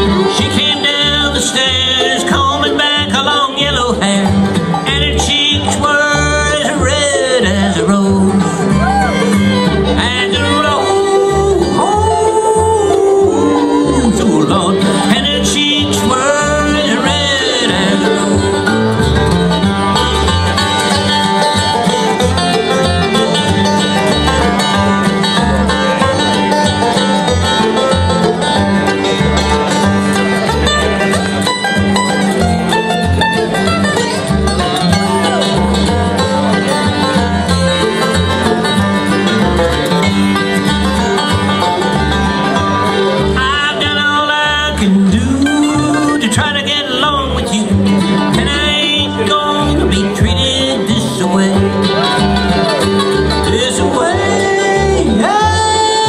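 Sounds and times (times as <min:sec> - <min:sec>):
banjo: 0:00.0 - 0:56.0
bluegrass band playing: 0:00.0 - 0:56.0.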